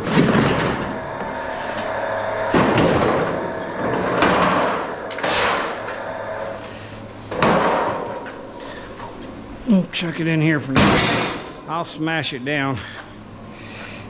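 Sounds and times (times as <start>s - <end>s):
metal parts clanking and scraping: 0.0s - 9.3s.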